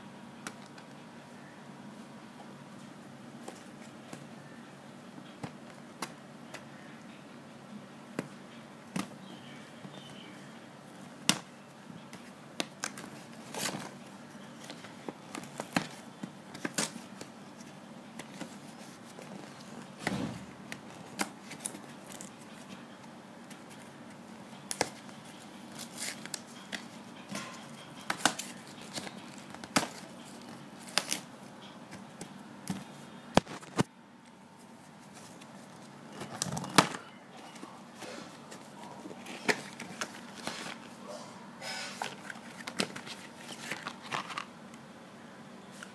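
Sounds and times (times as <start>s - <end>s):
cardboard and sachets rustling: 34.7s - 41.0s, 42.0s - 44.5s.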